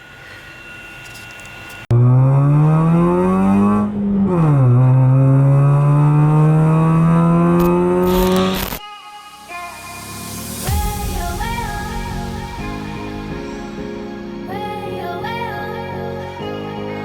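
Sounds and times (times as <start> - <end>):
car engine accelerating: 1.9 - 8.8.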